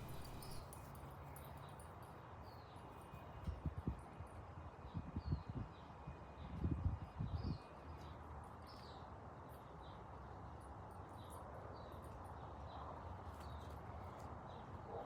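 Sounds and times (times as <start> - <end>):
small birds chirping: 0.0 - 0.6.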